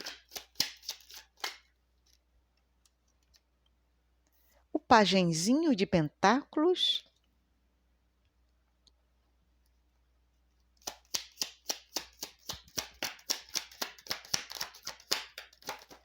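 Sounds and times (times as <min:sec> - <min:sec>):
cards being shuffled by hand: 0:00.0 - 0:02.2, 0:10.8 - 0:16.0.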